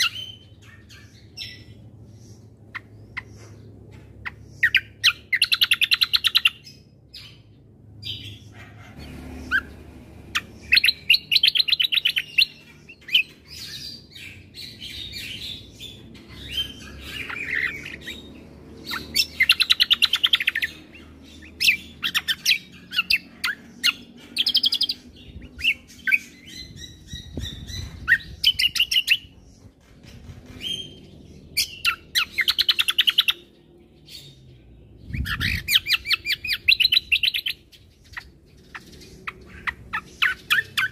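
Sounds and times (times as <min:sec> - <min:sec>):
bird singing trills and chirps: 0:00.0 - 0:40.9.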